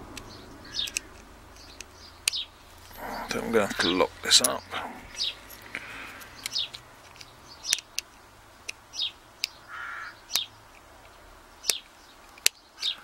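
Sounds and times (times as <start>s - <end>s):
bird chirping: 0.0s - 13.0s
small sharp clicks: 0.1s - 2.9s, 5.5s - 8.8s, 10.3s - 13.0s.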